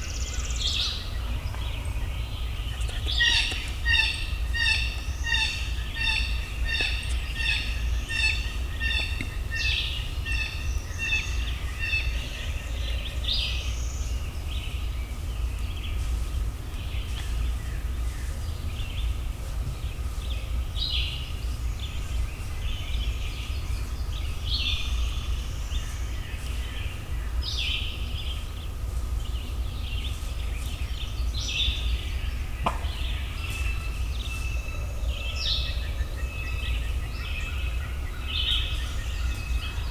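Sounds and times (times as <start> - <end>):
birds calling: 0.0 - 19.2
low wind rumble: 0.0 - 39.9.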